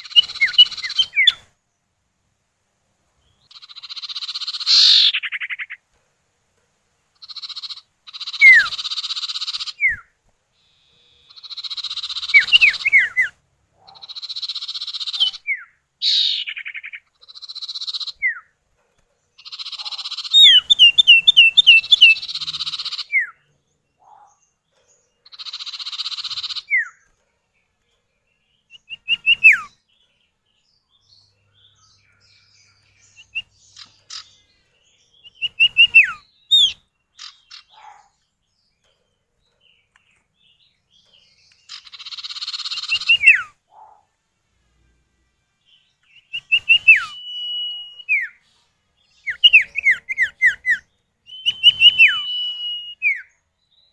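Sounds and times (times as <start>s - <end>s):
harsh buzzing bird churrs: 3.5s - 5.6s
sharp downslurred bird whistles: 8.2s - 10.1s, 35.4s - 37.6s, 46.3s - 48.4s, 49.3s - 53.3s.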